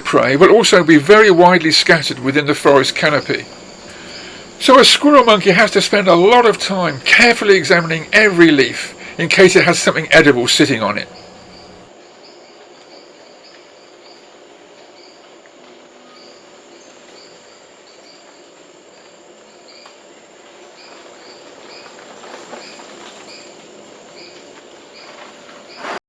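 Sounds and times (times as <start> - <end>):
insects hissing: 0.0 - 11.9.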